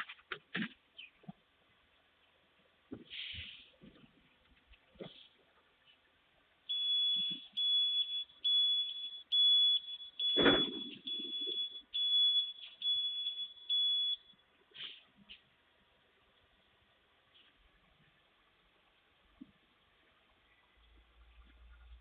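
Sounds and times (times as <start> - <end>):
reversing alarm beeping: 6.7 - 14.4.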